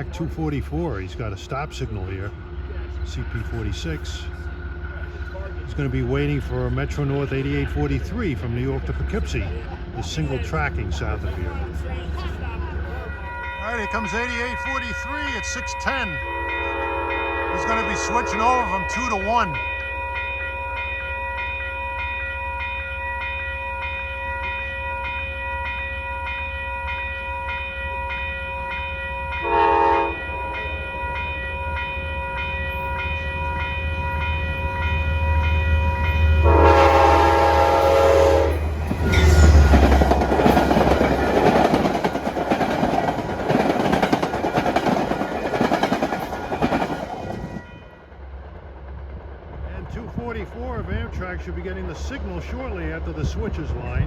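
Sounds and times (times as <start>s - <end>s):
train bell ringing: 0.0s - 48.1s
train wheel and rail noise: 0.0s - 54.0s
train horn blasts: 16.2s - 18.7s, 29.4s - 30.7s, 35.8s - 40.0s.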